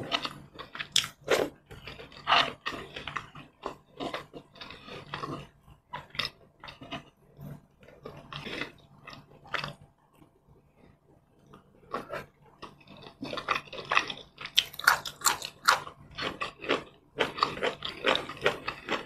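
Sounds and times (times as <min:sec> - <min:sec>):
wet chewing and lip smacks: 0:00.2 - 0:05.3, 0:11.4 - 0:19.0.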